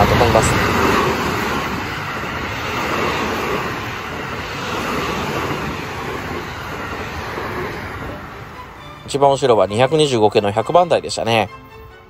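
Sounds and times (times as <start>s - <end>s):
electric train passing: 0.0s - 12.0s.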